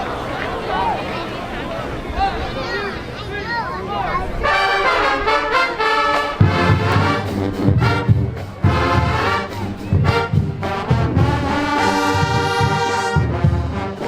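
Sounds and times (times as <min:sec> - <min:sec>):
marching band playing: 0:04.4 - 0:14.0.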